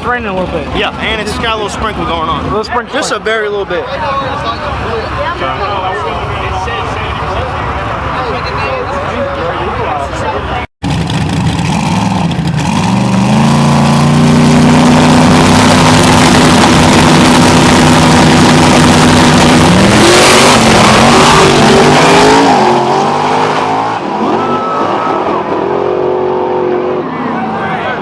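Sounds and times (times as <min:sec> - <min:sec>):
drag race cars at full throttle: 0:00.0 - 0:28.0.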